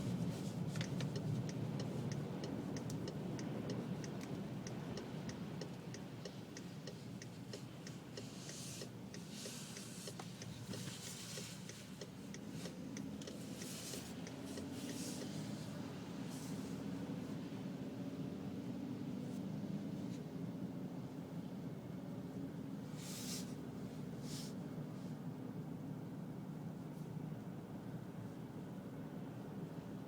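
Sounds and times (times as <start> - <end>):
hiss: 7.8 - 11.9, 22.9 - 23.6, 24.2 - 24.6.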